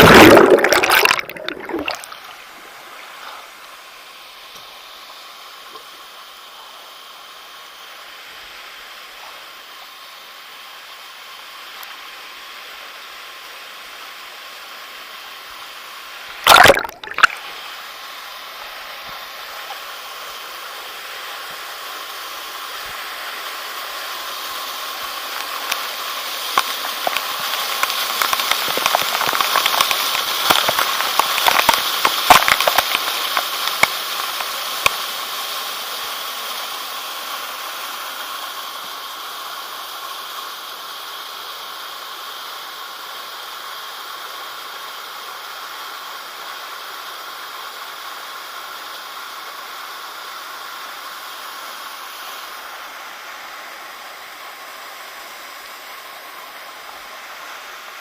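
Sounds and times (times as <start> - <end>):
small splashes: 0.0 - 2.4, 16.4 - 17.5, 27.0 - 34.0
rushing water: 0.0 - 58.0.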